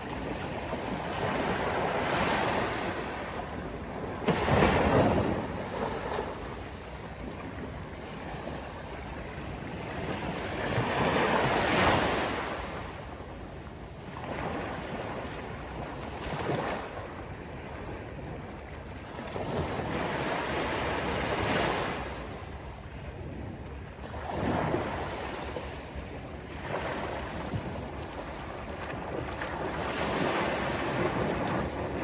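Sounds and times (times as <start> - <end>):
sea waves breaking on beach: 0.0 - 13.0, 24.0 - 32.0
wind buffeting microphone: 0.0 - 32.0.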